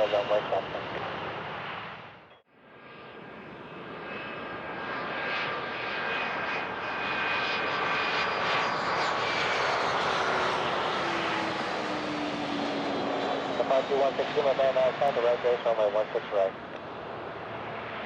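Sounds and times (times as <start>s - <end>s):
jet engines roaring and whining: 0.0s - 18.0s.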